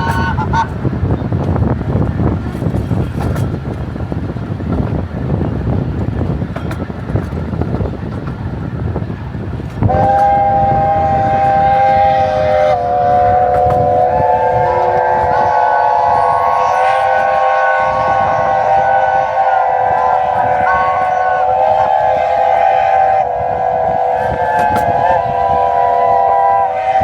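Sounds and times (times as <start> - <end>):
steam locomotive chime whistles: 0.0 - 0.8, 9.8 - 27.0
low rumbling noise: 0.0 - 27.0.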